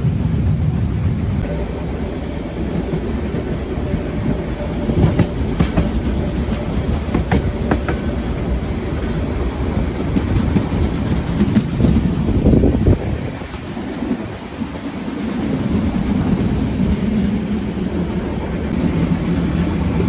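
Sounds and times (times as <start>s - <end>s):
steam train rumbling: 0.0s - 20.0s
wheels clacking: 1.4s - 20.0s.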